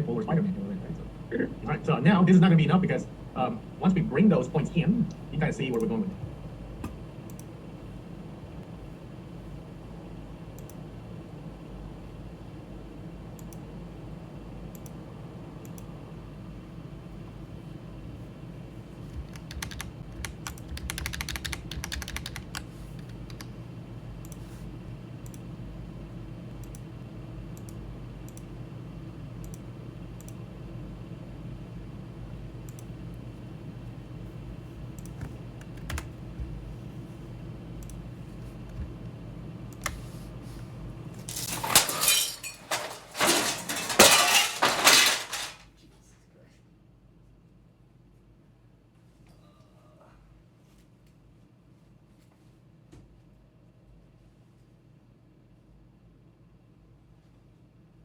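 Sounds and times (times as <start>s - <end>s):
computer hum: 0.0s - 41.2s
keyboard and mouse clicks: 19.2s - 23.5s
mirror falling and crashing: 41.2s - 45.7s.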